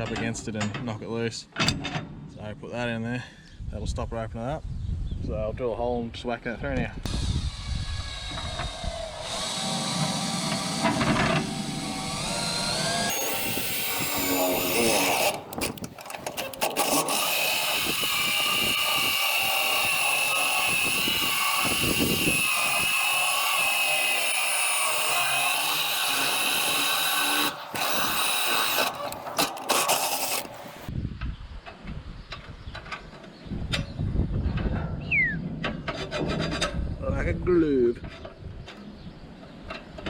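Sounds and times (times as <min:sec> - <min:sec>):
power drill boring through metal: 0:07.1 - 0:30.9.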